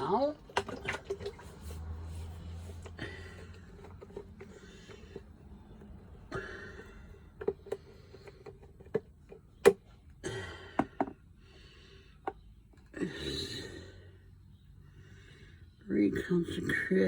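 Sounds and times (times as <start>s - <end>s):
bottles and cups tapping: 0.0s - 1.6s, 6.6s - 9.8s, 10.7s - 11.2s.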